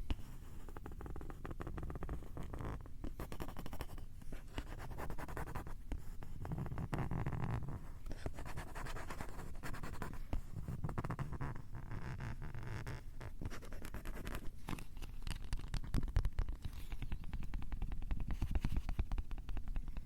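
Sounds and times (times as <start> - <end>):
fingers scratching on microphone: 6.4 - 20.0.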